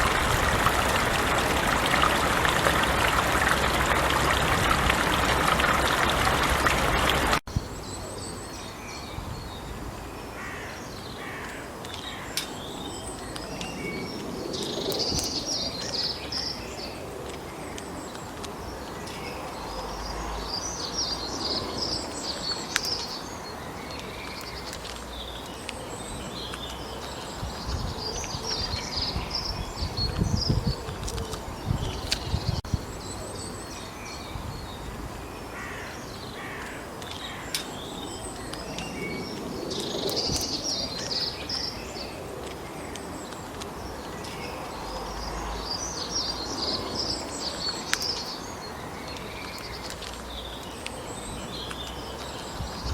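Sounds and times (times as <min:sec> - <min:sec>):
steady rushing noise: 0:00.0 - 0:07.4
low rumbles: 0:00.0 - 0:08.0
songbirds chirping: 0:00.0 - 0:52.9.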